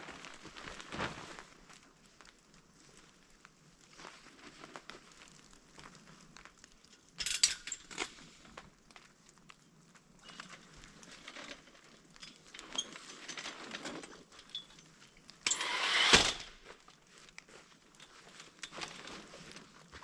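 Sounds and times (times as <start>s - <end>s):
gear rustling and clicking: 10.2s - 20.0s
scraping rush: 15.5s - 16.6s.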